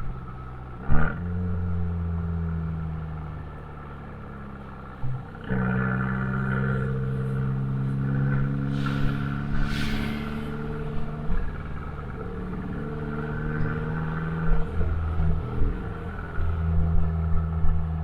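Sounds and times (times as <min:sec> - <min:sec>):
car engine driving: 0:00.0 - 0:18.0
brief hiss: 0:08.7 - 0:10.8
short sharp sounds: 0:08.7 - 0:11.0.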